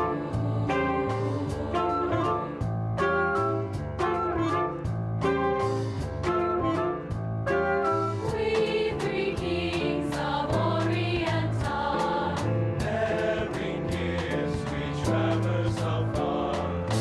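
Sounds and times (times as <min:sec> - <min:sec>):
choir singing: 0:00.0 - 0:02.7, 0:08.2 - 0:17.0
instrumental accompaniment with beat: 0:00.0 - 0:17.0.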